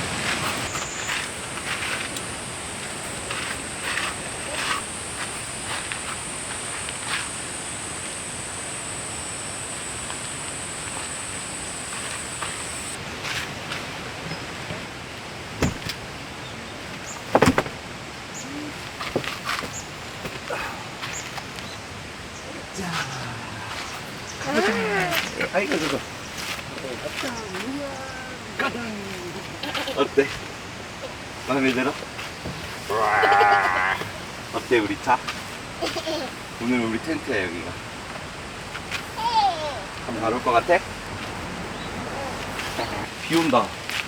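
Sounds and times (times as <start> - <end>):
steady high whine: 0.0 - 13.0
stream rushing: 0.0 - 44.0
sharp knocks: 15.6 - 16.0, 17.3 - 17.8.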